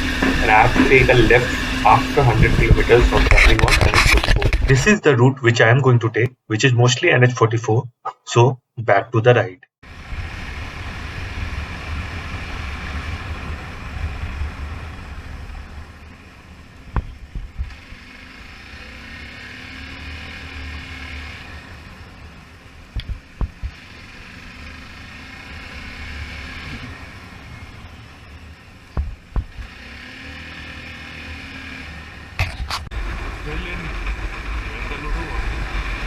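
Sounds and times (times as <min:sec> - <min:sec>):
wind rushing past microphone: 0:00.0 - 0:04.9
motorcycle engine rumble: 0:00.0 - 0:05.0, 0:09.8 - 0:36.0.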